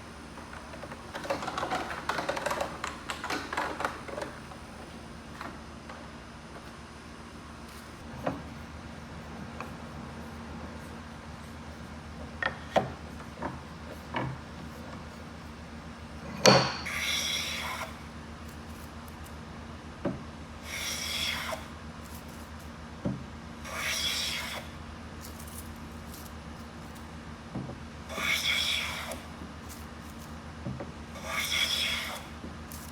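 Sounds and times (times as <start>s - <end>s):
hand tool scraping wood: 16.3s - 18.0s, 20.6s - 22.6s, 23.7s - 24.7s, 28.1s - 30.4s, 31.2s - 32.9s.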